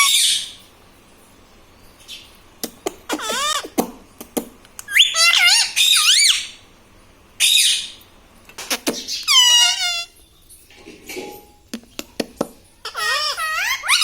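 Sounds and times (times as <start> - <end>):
parakeet harsh screech: 0.0 - 0.6, 3.1 - 3.7, 4.9 - 6.6, 9.1 - 10.2, 12.8 - 14.0
parakeet warbling calls: 0.0 - 0.6, 3.1 - 3.8, 4.9 - 6.6, 7.4 - 8.0, 8.7 - 10.2, 12.8 - 14.0.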